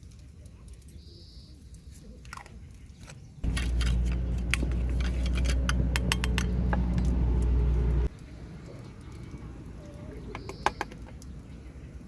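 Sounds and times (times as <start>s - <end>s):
loud low hum: 3.4s - 8.1s.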